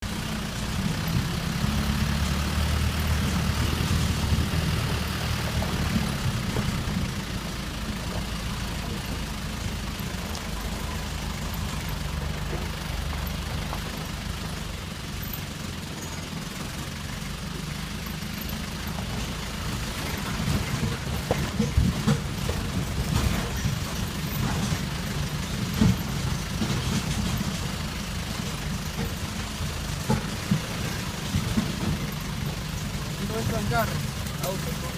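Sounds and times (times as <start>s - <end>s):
engine running low rumble: 0.0s - 34.9s.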